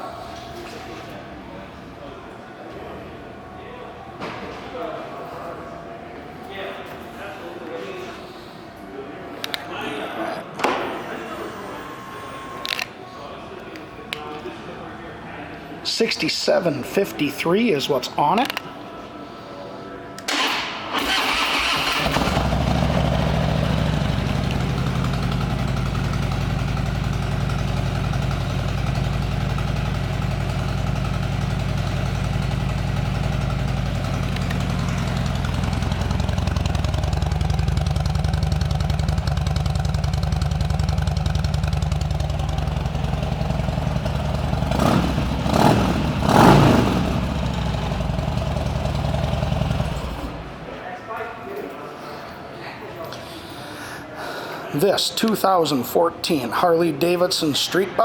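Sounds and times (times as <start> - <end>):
motorcycle engine starting and idling: 20.2 - 50.7.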